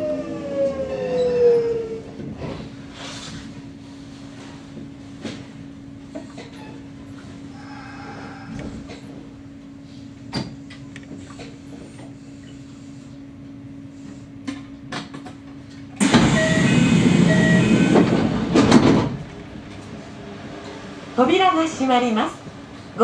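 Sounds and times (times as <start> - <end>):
electric train humming: 15.5 - 23.0
short beeping tones: 16.4 - 17.7.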